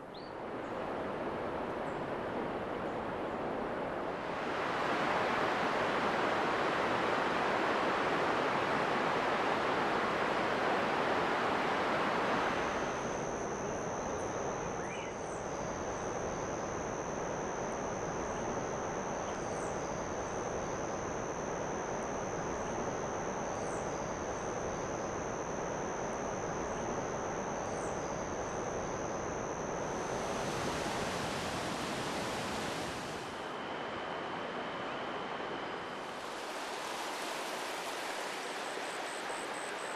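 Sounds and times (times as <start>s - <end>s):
rushing water: 0.4s - 13.6s, 29.3s - 39.9s
high-pitched insect-like whine: 4.2s - 39.9s.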